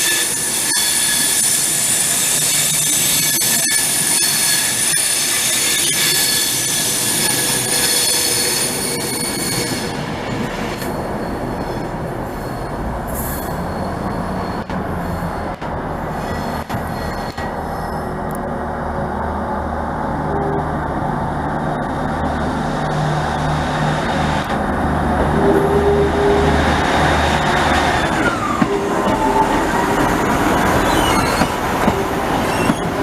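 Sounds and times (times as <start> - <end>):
train wheels squealing: 0.0 - 10.0, 10.8 - 15.6, 16.2 - 18.0, 28.0 - 33.0
train rumble: 0.0 - 33.0.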